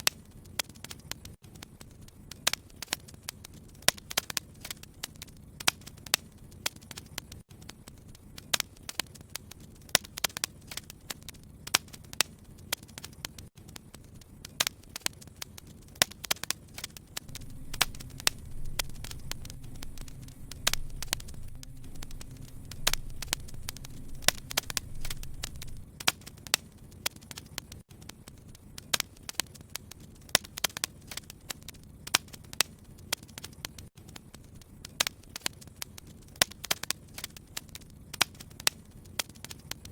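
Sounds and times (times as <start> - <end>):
fire crackling and popping: 0.0 - 39.9
low hiss: 16.7 - 26.0
low rumble: 17.3 - 25.9.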